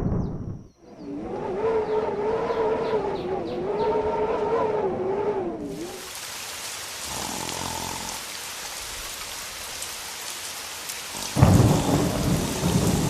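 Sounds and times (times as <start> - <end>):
loud low thunder rumble: 0.0 - 0.7, 11.2 - 13.0
steady rain hiss: 5.6 - 13.0.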